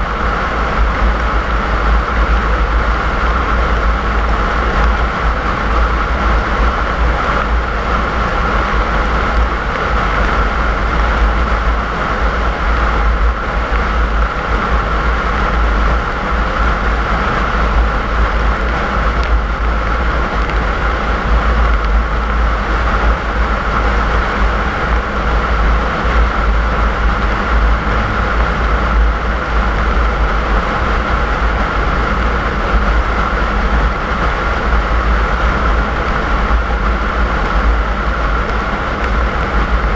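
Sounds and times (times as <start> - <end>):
deep car engine rumble: 0.0 - 39.9
road noise hiss: 0.0 - 39.9.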